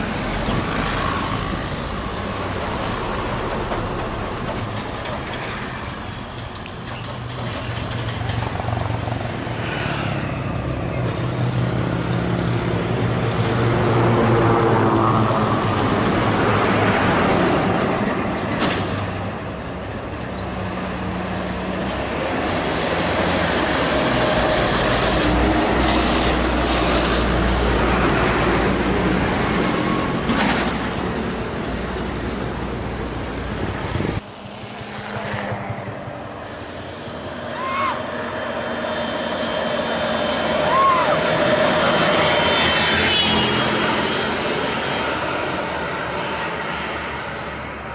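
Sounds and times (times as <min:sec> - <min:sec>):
diesel truck engines under load: 0:00.0 - 0:34.8.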